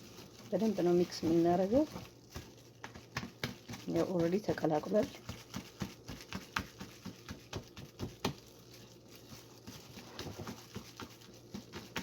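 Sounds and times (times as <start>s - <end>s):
utensil scraping a mixing bowl: 0.0s - 12.0s.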